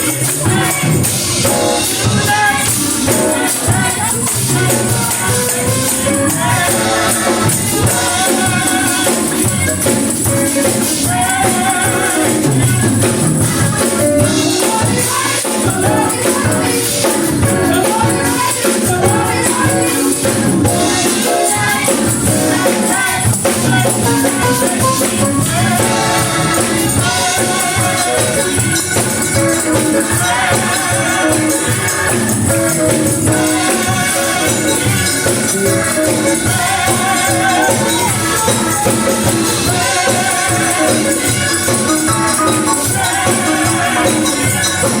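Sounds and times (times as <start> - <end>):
gospel singing with accompaniment: 0.0 - 45.0
tambourine shaking: 0.0 - 45.0.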